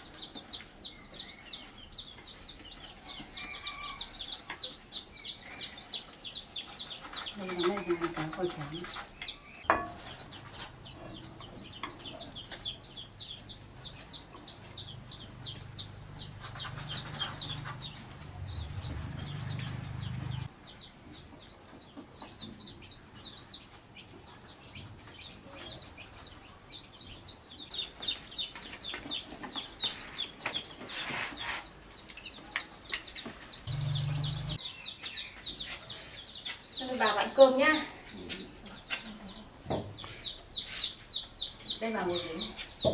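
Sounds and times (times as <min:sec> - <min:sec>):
chickens clucking: 0:00.0 - 0:42.9
chickens peeping: 0:00.0 - 0:42.9
low steady hum: 0:33.7 - 0:34.6.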